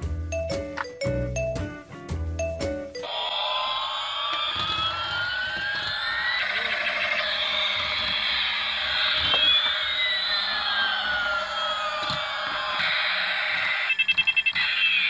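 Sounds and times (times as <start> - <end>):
toy electronic jet engine sound: 3.0 - 15.0.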